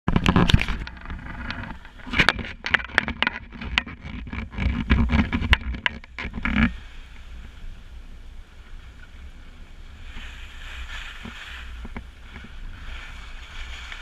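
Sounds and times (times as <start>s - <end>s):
sharp knocks and scrapes: 0.1s - 6.9s.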